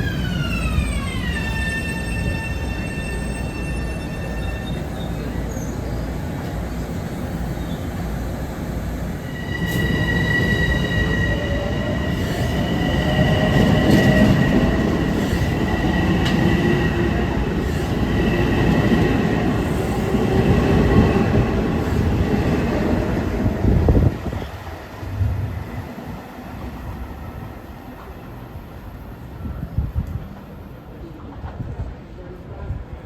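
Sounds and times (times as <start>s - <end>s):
electric train rumbling on tracks: 0.0s - 33.0s.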